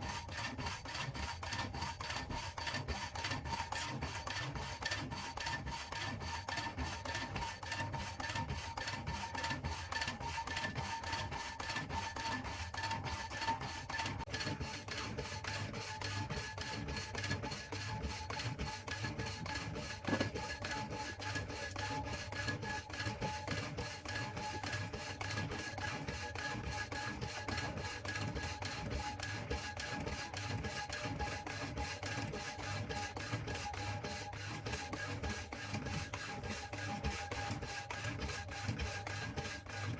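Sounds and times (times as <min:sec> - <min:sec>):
hacksaw blade rasping: 0:18.4 - 0:21.7.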